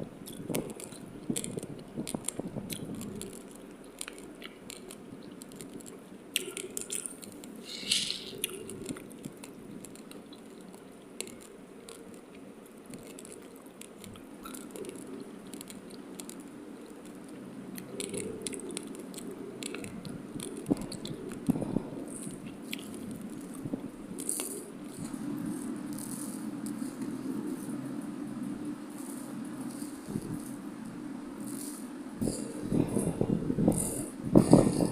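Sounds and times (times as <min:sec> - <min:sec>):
chewing raw rice crunches: 0:00.2 - 0:27.8.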